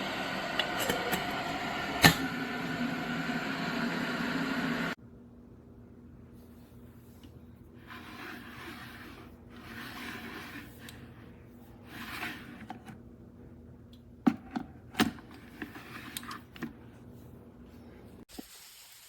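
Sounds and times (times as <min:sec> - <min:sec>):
rubbing and scraping: 0:07.8 - 0:12.9.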